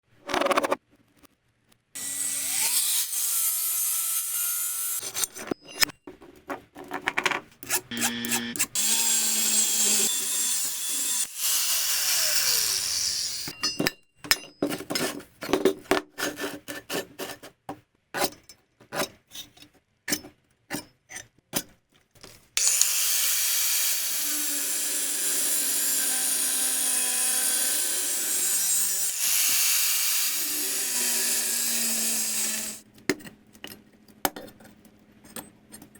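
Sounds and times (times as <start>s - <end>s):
power tool grinding metal: 2.0s - 5.4s, 7.6s - 13.6s, 22.6s - 32.8s.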